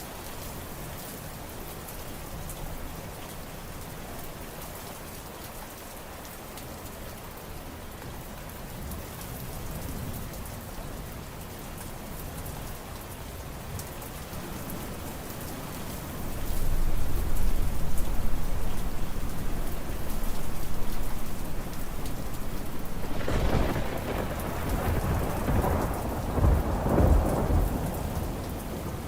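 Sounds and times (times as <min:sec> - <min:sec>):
rain patter: 0:00.0 - 0:29.0
low rumble: 0:14.4 - 0:26.6.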